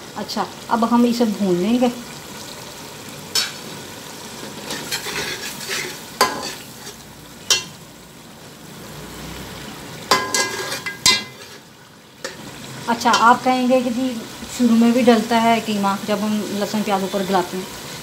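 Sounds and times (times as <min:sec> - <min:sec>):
meat sizzling in a pot: 0:00.0 - 0:18.0
metal utensil scraping a pot: 0:04.6 - 0:07.7, 0:10.1 - 0:12.5.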